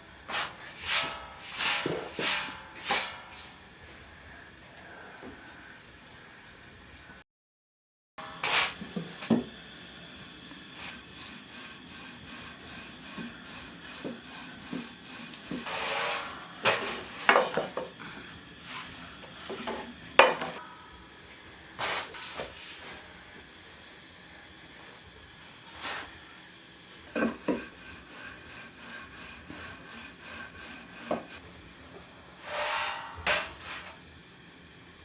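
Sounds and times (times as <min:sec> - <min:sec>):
rubbing and scraping: 0:10.8 - 0:17.9, 0:27.2 - 0:31.4
dishes and utensils knocking on wood: 0:16.7 - 0:18.0, 0:19.5 - 0:20.6.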